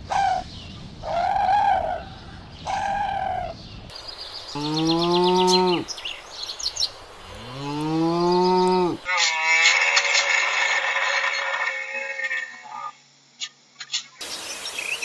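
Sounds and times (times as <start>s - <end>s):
small birds chirping: 0.0s - 9.1s, 13.4s - 15.0s
cow mooing: 4.6s - 5.9s, 7.3s - 10.2s
high-pitched animal call: 7.4s - 13.0s.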